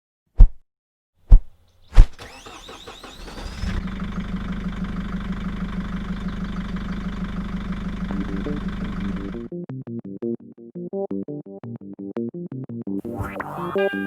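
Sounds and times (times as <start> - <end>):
engine cranking and idling: 2.2 - 9.5.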